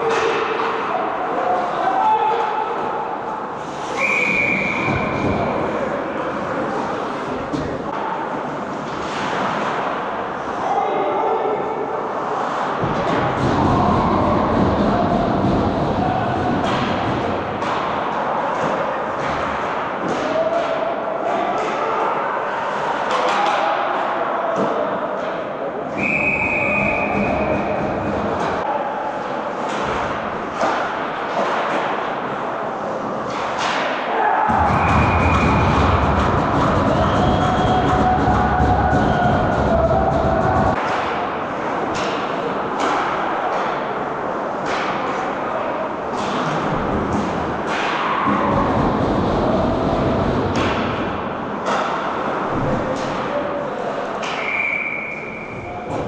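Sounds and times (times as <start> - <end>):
puck and sticks knocking: 12.8 - 20.8, 33.2 - 43.8
goal music over speakers: 34.5 - 40.8.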